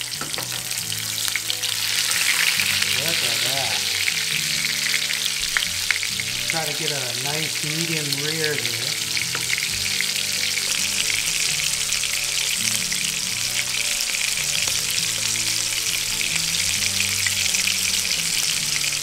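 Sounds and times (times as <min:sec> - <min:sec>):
meat sizzling in a pan: 0:00.0 - 0:19.0.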